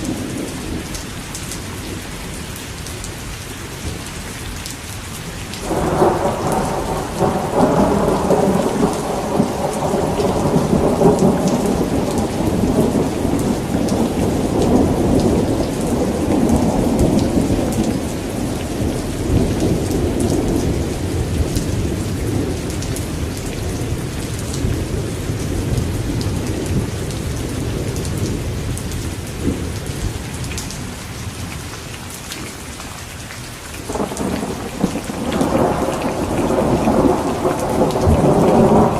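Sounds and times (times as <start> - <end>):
rain falling: 0.0 - 38.9
thunder rumbling: 5.6 - 31.0, 33.9 - 38.9.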